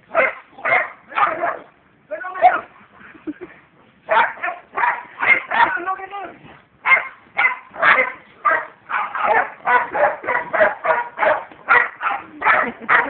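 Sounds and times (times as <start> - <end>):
dog barking: 0.1 - 1.7, 4.1 - 5.8, 6.8 - 13.0.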